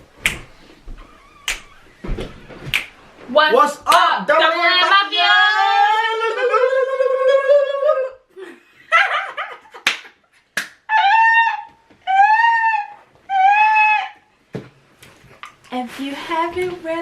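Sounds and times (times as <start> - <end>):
sharp smacks: 0.2 - 0.5, 2.6 - 3.0
short high calls: 10.9 - 14.3.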